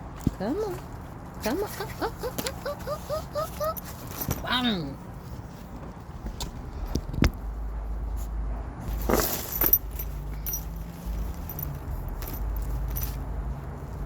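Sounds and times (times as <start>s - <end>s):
metallic jangle: 8.9s - 14.0s.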